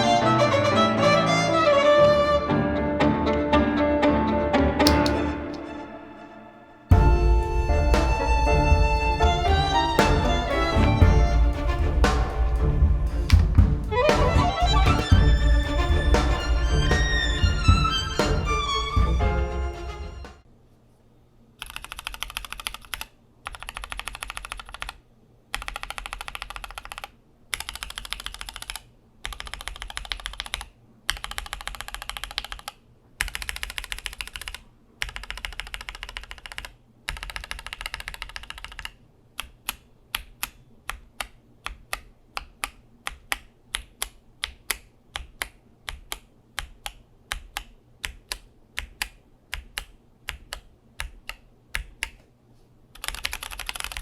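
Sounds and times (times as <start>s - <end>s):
mechanical keyboard typing: 21.6s - 52.2s, 52.9s - 54.0s.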